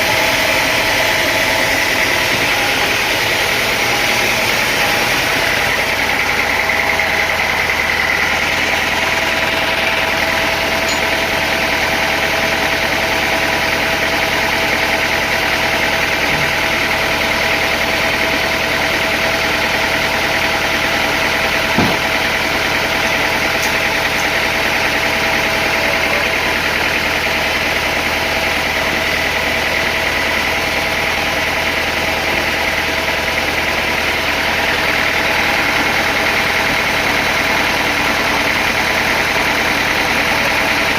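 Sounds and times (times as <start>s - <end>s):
machinery drone: 0.0s - 40.9s
steady machine whine: 0.0s - 40.9s
single knock: 21.8s - 22.0s.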